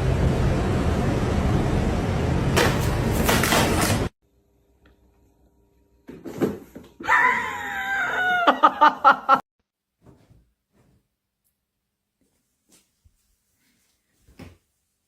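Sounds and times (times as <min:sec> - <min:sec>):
high-pitched scream-like cry: 0:07.0 - 0:08.6.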